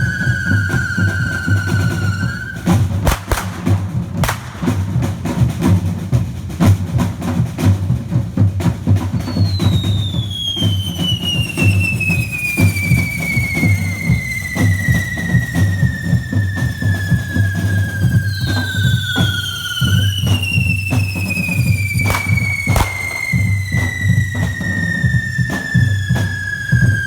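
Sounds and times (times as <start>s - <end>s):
whistling firework: 0.0s - 5.2s, 9.2s - 27.0s
drums beating a dense rhythm: 1.0s - 27.0s
firework bangs: 2.6s - 5.5s, 21.0s - 25.3s.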